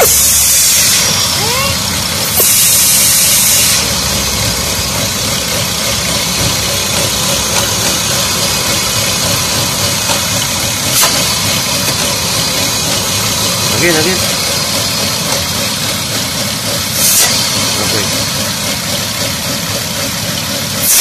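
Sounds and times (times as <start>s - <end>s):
car engine idling: 0.0s - 21.0s
air sucking at engine opening: 2.2s - 4.3s, 7.6s - 13.7s, 16.9s - 17.9s.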